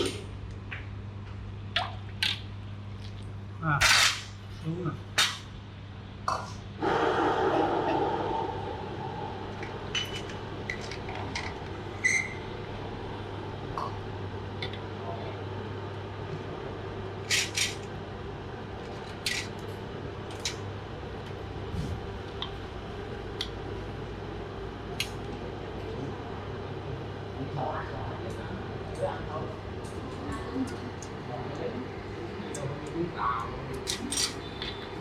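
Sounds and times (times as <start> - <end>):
steady low hum: 0.0 - 35.0
rush of sound: 6.8 - 10.7.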